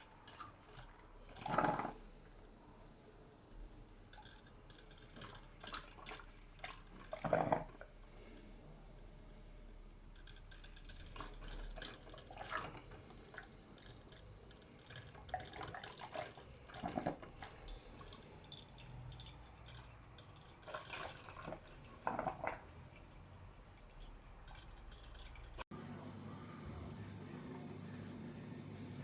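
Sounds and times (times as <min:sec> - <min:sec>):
coffee maker water dripping: 0:03.9 - 0:08.0, 0:10.0 - 0:25.6.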